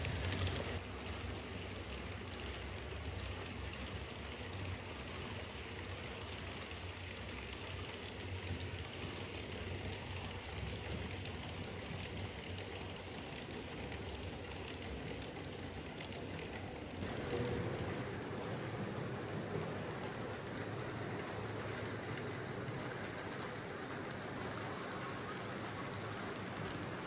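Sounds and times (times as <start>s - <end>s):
model train motor hum: 0.0s - 27.0s
wheels clicking on track: 0.0s - 27.0s.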